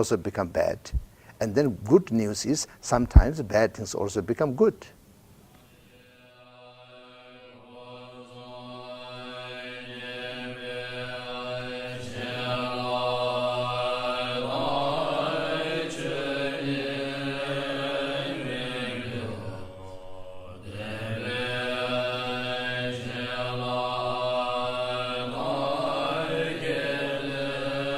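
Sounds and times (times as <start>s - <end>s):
mantra chanting: 5.7s - 27.9s.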